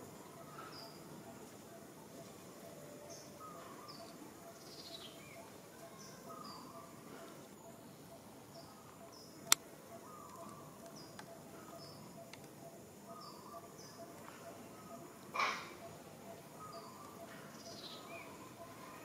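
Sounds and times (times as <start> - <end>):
birds chirping: 0.0 - 19.0
birds warbling: 1.7 - 19.0
sharp click: 9.4 - 9.6.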